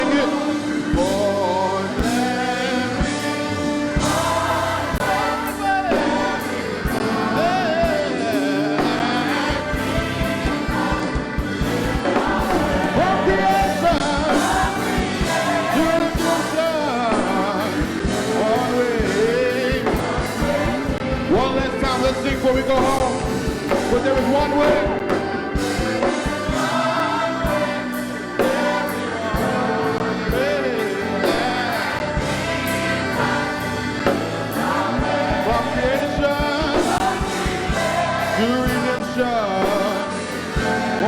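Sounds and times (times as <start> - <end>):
drums keeping a beat: 0.0 - 41.0
gospel choir singing: 0.0 - 41.0
sustained keyboard chords: 0.0 - 41.0.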